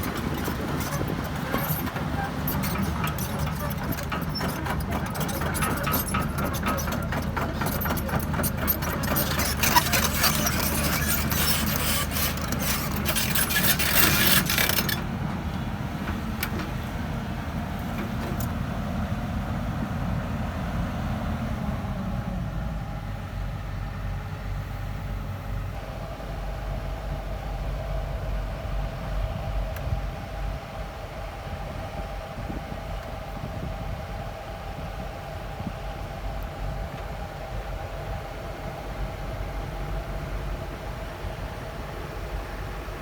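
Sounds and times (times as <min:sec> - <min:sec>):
metallic clattering and rattling: 0:00.0 - 0:15.1
diesel engine running: 0:00.0 - 0:24.1.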